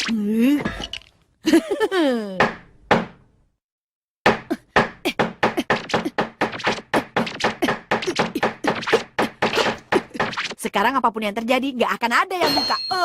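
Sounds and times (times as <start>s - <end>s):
cartoon rapid knocking and tapping: 4.3s - 10.6s.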